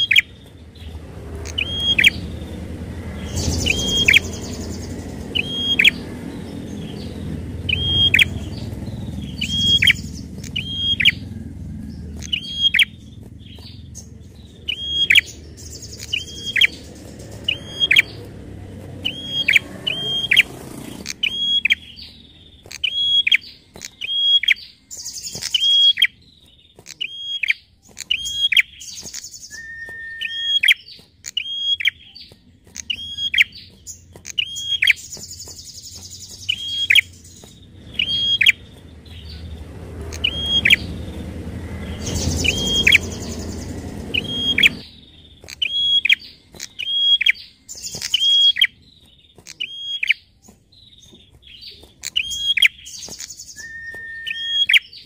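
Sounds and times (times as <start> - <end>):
low rumble: 0.0 - 22.7, 35.0 - 45.5
bird buzzy trills: 0.0 - 55.0
bird chip calls: 0.0 - 55.0.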